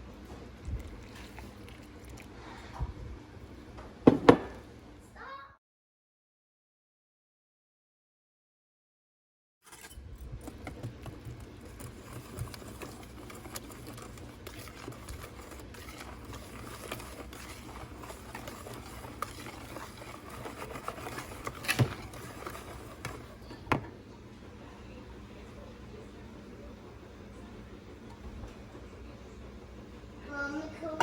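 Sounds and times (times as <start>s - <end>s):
utensils and dishes clattering: 11.8s - 23.9s.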